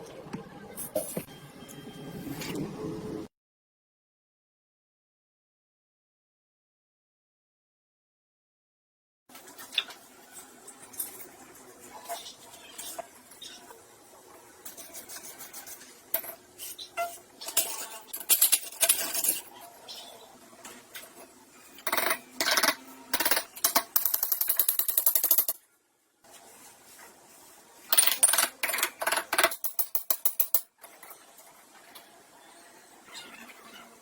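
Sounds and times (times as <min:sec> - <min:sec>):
metal tools clinking and scraping: 0:16.2 - 0:19.6.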